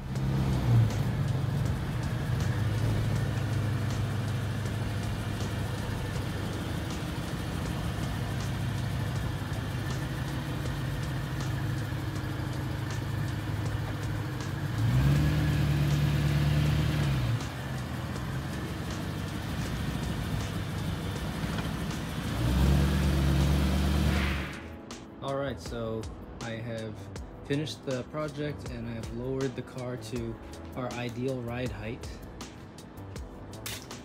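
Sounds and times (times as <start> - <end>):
car engine at low speed: 0.0 - 25.0.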